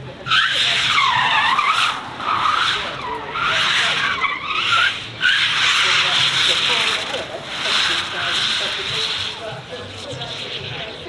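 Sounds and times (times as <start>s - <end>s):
car tyres squealing: 0.0s - 11.0s
faint car engine running: 0.0s - 11.0s.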